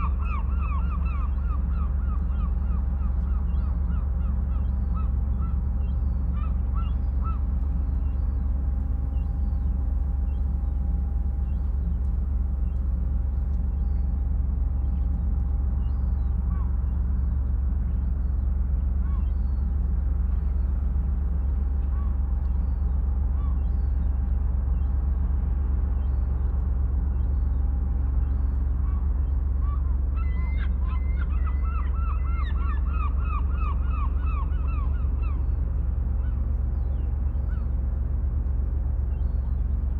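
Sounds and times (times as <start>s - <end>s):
low rumble of sea: 0.0s - 39.9s
birds calling: 29.2s - 37.8s.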